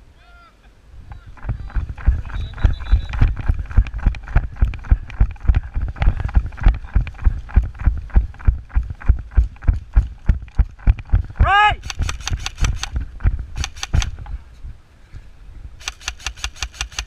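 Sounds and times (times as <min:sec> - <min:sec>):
heavy running footsteps: 0:01.3 - 0:13.5.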